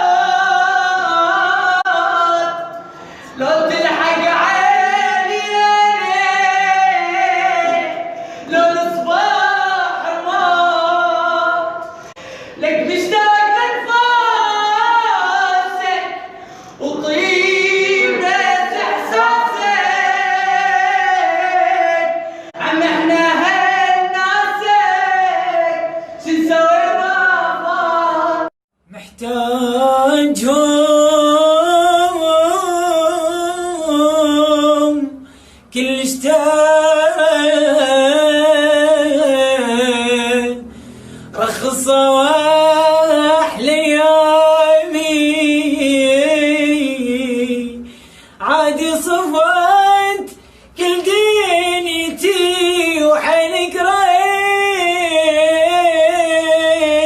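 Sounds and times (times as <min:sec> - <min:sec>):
person singing unaccompanied: 0:00.0 - 0:35.2.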